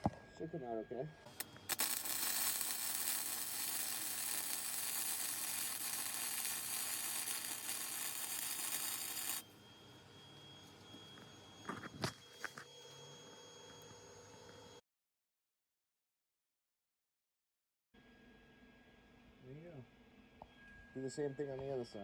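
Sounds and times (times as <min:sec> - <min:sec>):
arc welding hiss: 0:01.4 - 0:09.4.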